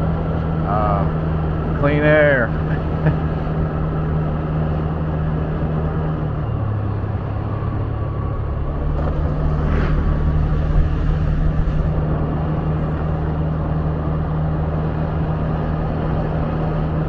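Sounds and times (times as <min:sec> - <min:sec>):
wind and road noise: 0:00.0 - 0:17.0
low hum: 0:02.7 - 0:13.8
motor scooter engine running: 0:07.6 - 0:12.0.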